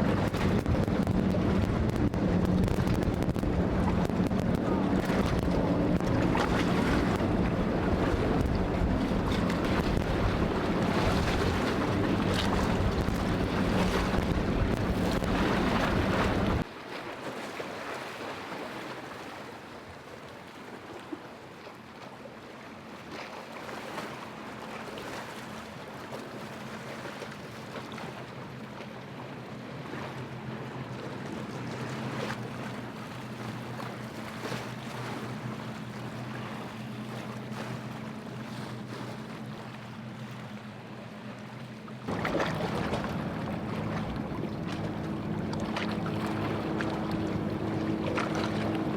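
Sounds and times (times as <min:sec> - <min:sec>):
boat engines running: 0:00.0 - 0:16.6, 0:24.1 - 0:48.9
surf breaking: 0:00.0 - 0:16.6, 0:42.1 - 0:48.9
wind buffeting microphone: 0:00.0 - 0:16.6, 0:42.1 - 0:48.9.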